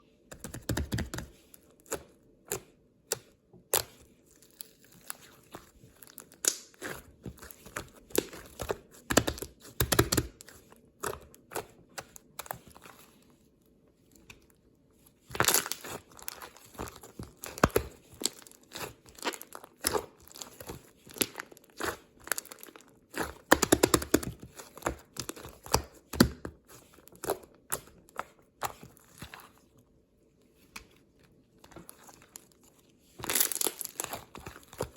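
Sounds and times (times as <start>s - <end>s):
crinkling and crackling: 4.2s - 13.4s, 14.0s - 25.8s, 30.4s - 34.9s.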